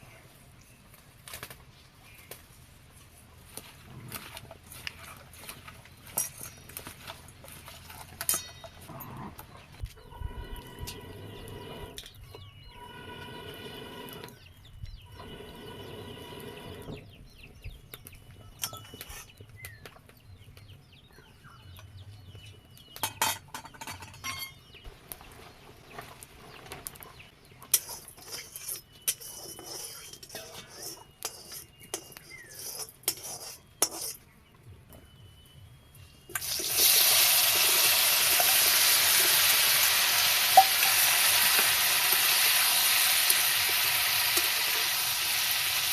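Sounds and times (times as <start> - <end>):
utensils clinking: 4.6 - 9.3, 23.0 - 24.7, 27.7 - 34.2
chickens calling: 8.4 - 21.4.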